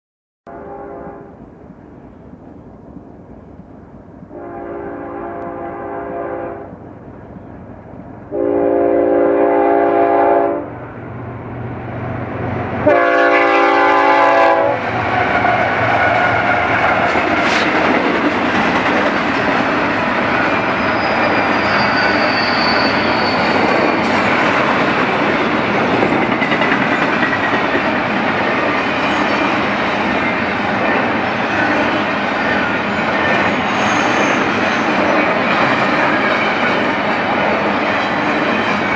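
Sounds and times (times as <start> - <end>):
locomotive air horn blasts: 0.5 - 1.4, 4.3 - 6.7, 8.3 - 10.7, 12.8 - 14.8
diesel locomotives passing: 0.5 - 38.9
train wheels clattering on rails: 13.4 - 38.9.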